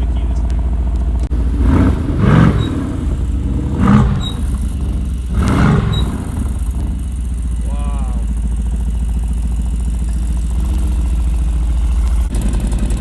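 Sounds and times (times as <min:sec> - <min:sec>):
car engine idling: 0:00.0 - 0:13.0
engine revving in short blips: 0:00.4 - 0:08.2.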